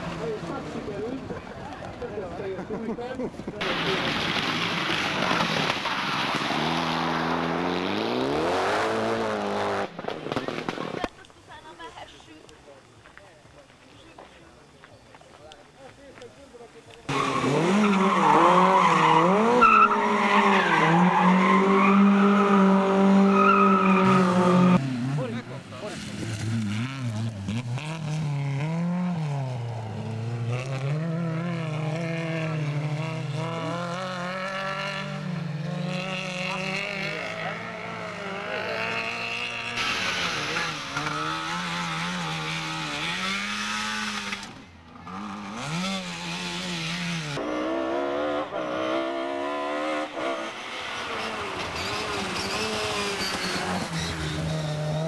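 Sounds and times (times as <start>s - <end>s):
car engine revving high: 45.1s - 55.0s.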